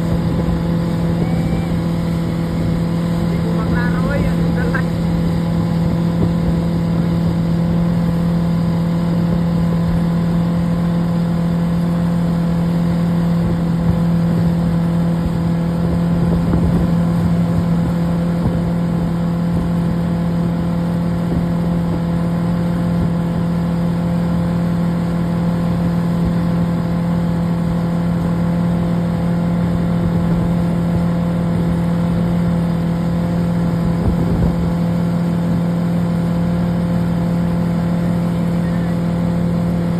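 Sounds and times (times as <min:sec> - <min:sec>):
wind noise: 0:00.0 - 0:07.3, 0:33.8 - 0:35.0
motorboat engine drone: 0:00.0 - 0:39.9
rushing water: 0:00.0 - 0:39.9.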